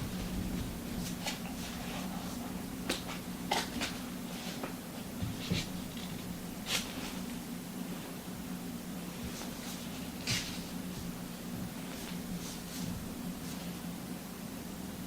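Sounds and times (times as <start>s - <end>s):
steady low hum: 0.0s - 15.0s
book pages rustling: 1.0s - 7.4s, 9.2s - 13.8s.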